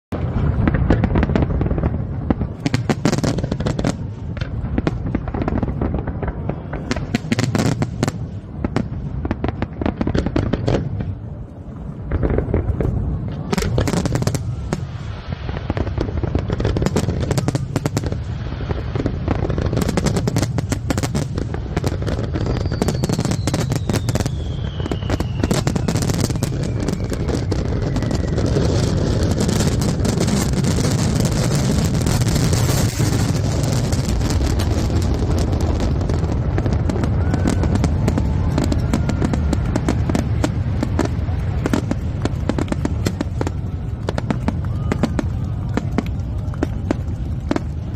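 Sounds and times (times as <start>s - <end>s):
descending firework whistle: 0.1s - 47.9s
firework bangs: 0.1s - 47.9s
firework crackling: 0.1s - 47.9s.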